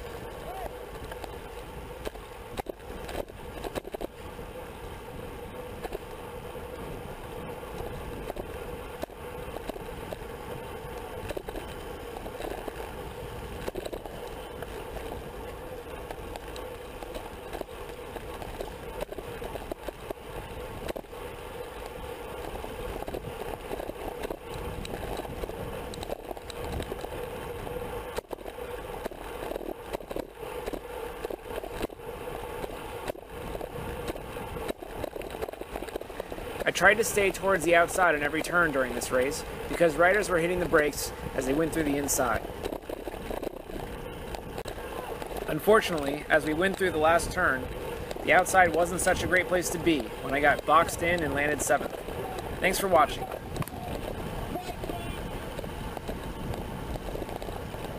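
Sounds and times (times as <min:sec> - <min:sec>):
bike clicks and knocks: 0:00.0 - 0:57.9
constant hum: 0:00.0 - 0:57.9
wind and tyre noise: 0:00.0 - 0:57.9.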